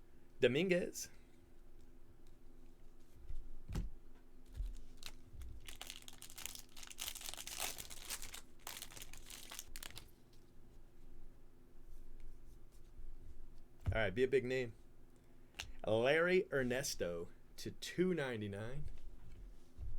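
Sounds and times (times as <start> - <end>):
foil wrapper crinkling and tearing: 4.5 - 10.1.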